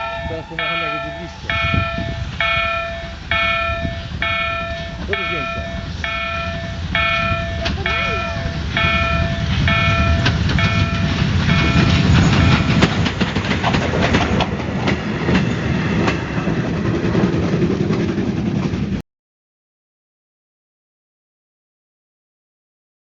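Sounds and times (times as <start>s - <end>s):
level crossing signal beeping: 0.0s - 12.9s
steam train rumbling past: 0.0s - 19.0s
wheels clacking on rail joints: 0.0s - 19.0s.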